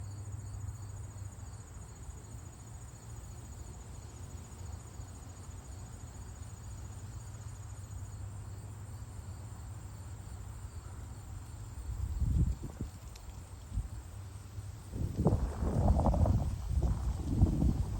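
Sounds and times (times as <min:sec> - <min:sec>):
crickets chirping: 0:00.0 - 0:17.9
steady low rumble: 0:14.9 - 0:17.9.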